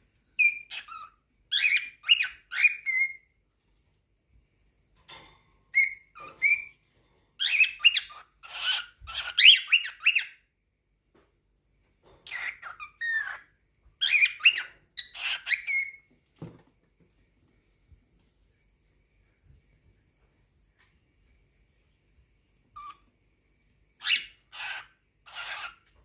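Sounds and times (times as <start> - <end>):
cockatiel chattering: 0.4 - 3.2, 7.4 - 10.4, 12.2 - 16.0, 22.8 - 23.0, 24.0 - 25.9.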